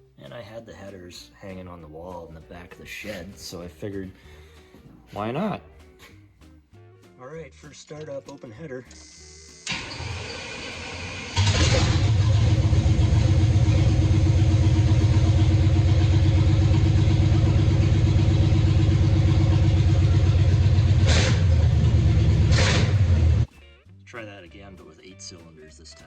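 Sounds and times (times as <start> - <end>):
engine starting and running unevenly: 9.6 - 23.5.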